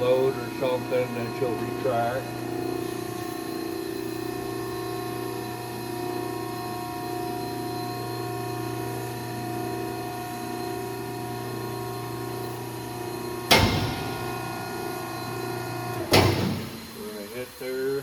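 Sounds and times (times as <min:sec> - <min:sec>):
hydraulic power unit humming: 0:00.0 - 0:18.0
loud bang: 0:16.1 - 0:17.0.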